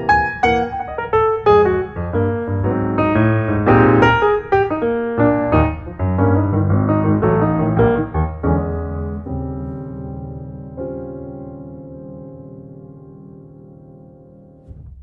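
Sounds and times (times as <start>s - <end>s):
piano melody with bass line: 0.0s - 15.0s.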